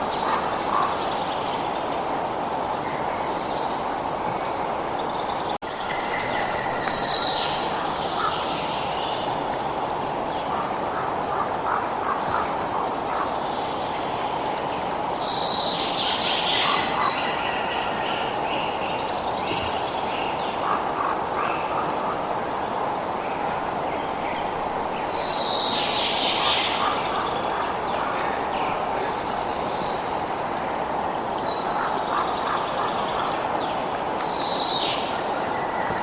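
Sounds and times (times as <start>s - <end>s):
birds singing: 4.8s - 9.4s, 31.2s - 36.0s.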